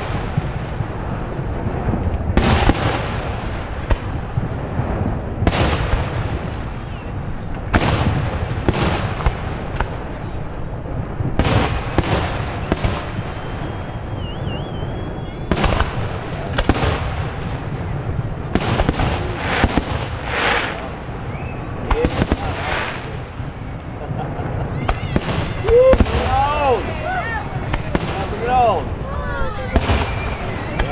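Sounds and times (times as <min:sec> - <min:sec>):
fireworks bangs: 0:00.0 - 0:30.9
fireworks crackling: 0:00.0 - 0:30.9
wavering firework whistle: 0:12.0 - 0:16.1, 0:19.2 - 0:21.9, 0:24.7 - 0:30.9.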